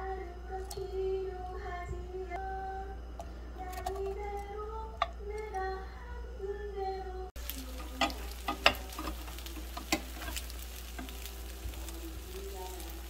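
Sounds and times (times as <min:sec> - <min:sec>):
food sizzling in oil: 0:07.4 - 0:13.0
metal spatula scraping pan: 0:07.8 - 0:11.3.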